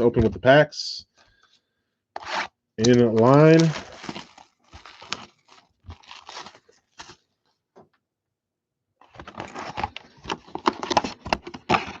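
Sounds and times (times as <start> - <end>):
foil packs crinkling: 2.8 - 7.5.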